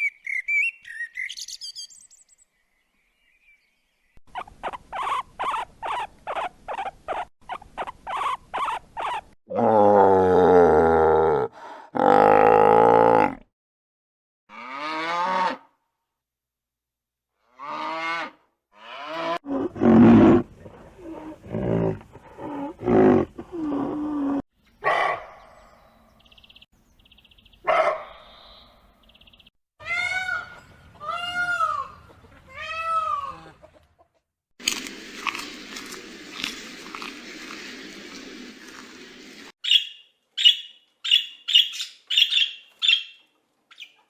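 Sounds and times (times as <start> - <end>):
animal calls: 4.3 - 9.7.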